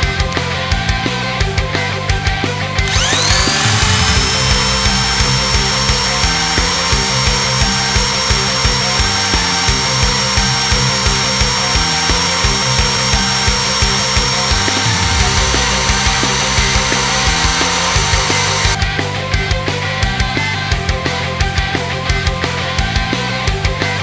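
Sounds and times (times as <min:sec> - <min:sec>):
background music with beat: 0:00.0 - 0:24.0
electric motor whining: 0:02.8 - 0:18.8.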